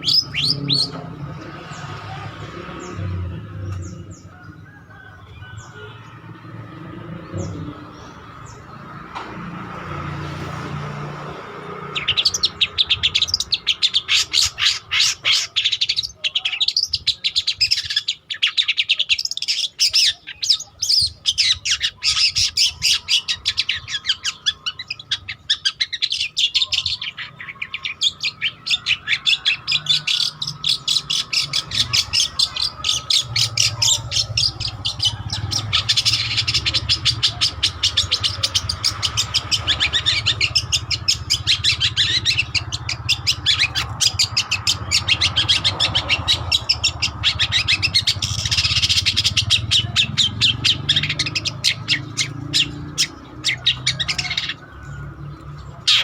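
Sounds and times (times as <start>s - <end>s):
shrike singing chattering notes: 19.7s - 56.0s.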